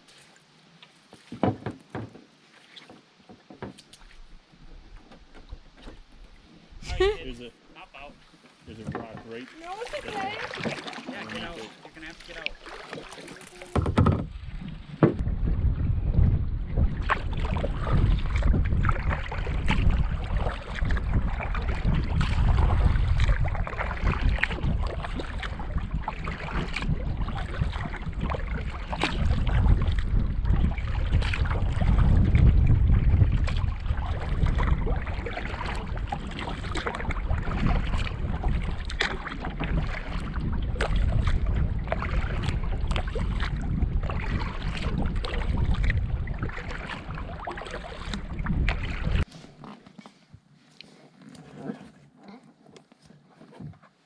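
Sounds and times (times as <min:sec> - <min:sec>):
water splashing: 0:00.0 - 0:04.4, 0:05.0 - 0:49.3
small knocks around canoe: 0:00.8 - 0:04.3, 0:04.9 - 0:06.4, 0:08.4 - 0:15.2
wind rumbling on microphone: 0:13.7 - 0:49.3.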